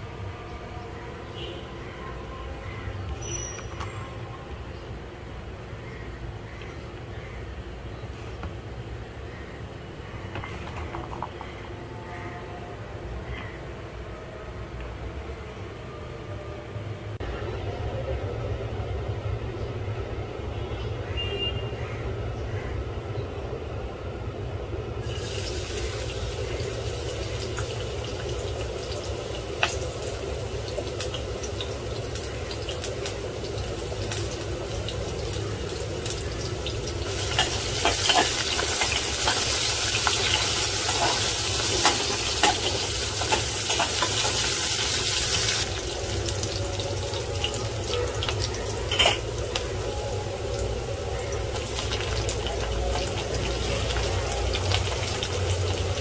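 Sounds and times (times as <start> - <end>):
garlic and onion sizzling in oil: 25.0 - 56.0.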